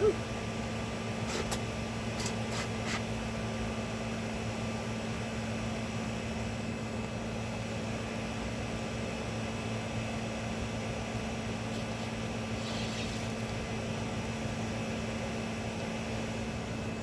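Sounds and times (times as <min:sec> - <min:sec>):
short hissing spurts: 0:01.2 - 0:01.6, 0:02.2 - 0:03.1, 0:11.7 - 0:13.6.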